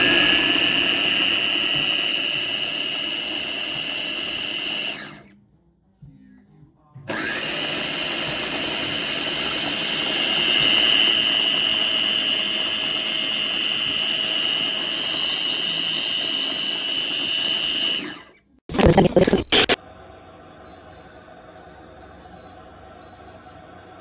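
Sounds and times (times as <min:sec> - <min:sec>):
blender motor whining: 0:18.7 - 0:19.8.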